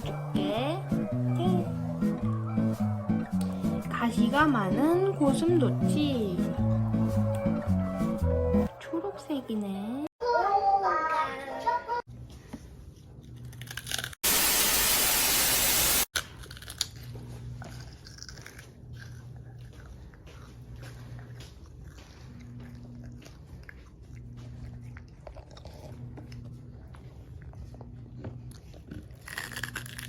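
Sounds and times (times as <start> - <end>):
person crunching and chewing food: 12.8 - 14.5, 16.1 - 30.0
loud burst of hiss: 14.2 - 16.1.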